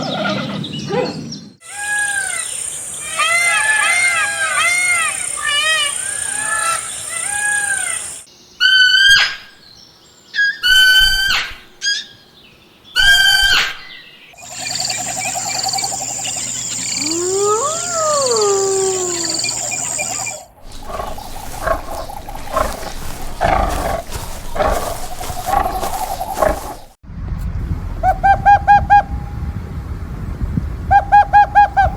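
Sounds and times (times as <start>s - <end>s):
rising and falling animal call: 1.6s - 9.3s, 14.4s - 27.0s
loud animal calls: 1.6s - 9.4s, 14.4s - 27.0s
short arching chirps: 14.4s - 27.0s.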